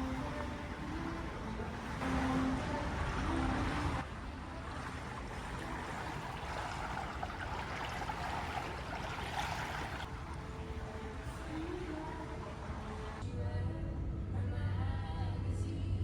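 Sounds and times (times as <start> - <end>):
rushing water: 0.0 - 13.2.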